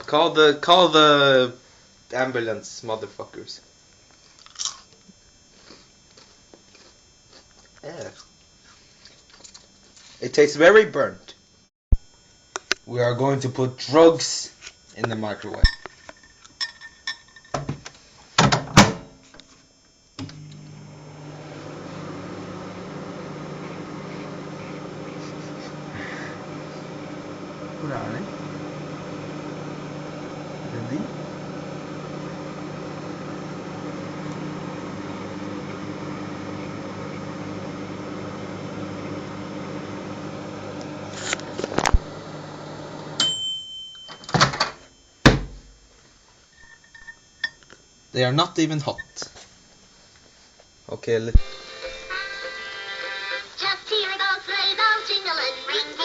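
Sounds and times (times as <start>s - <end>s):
microwave oven humming: 18.4s - 49.9s
microwave beep: 20.2s - 41.1s, 42.9s - 45.4s.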